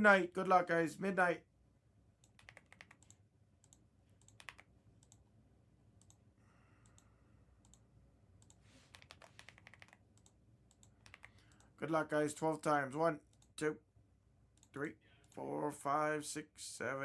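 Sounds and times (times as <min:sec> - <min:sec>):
typing on computer keyboard: 0:02.2 - 0:05.2, 0:06.0 - 0:06.2, 0:06.8 - 0:07.8, 0:08.4 - 0:11.7.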